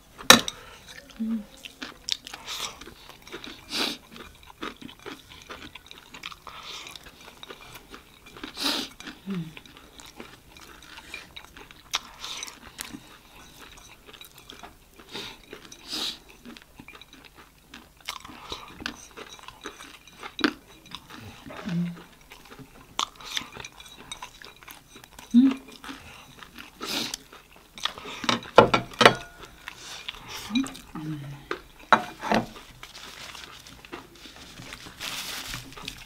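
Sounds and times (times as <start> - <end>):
crunching puffed rice snack: 1.0 - 28.3, 32.5 - 36.0.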